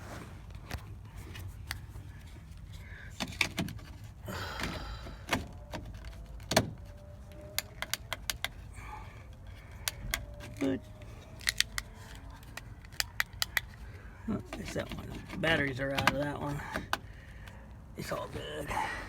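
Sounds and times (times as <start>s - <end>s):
clicks and knocks from handling things: 3.1s - 8.6s, 9.3s - 17.6s.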